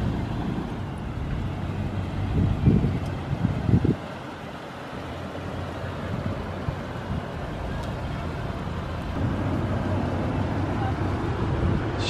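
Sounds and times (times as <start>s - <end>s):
suv engine low hum: 0.0s - 12.0s.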